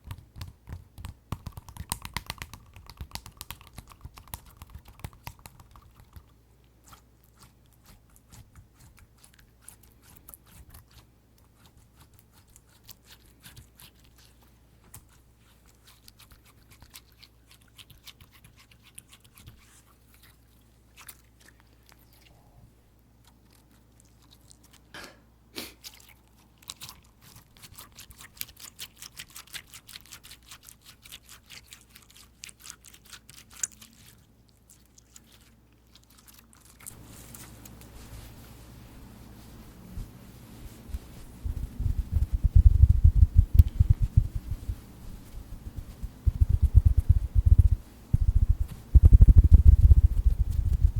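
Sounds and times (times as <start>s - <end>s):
fingers squishing slime: 0.0s - 22.4s, 25.8s - 37.0s, 45.7s - 50.9s.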